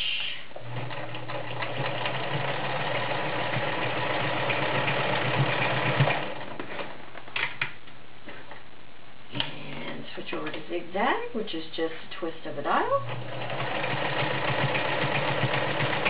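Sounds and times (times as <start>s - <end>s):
sewing machine running: 0.6s - 6.9s, 13.0s - 16.0s.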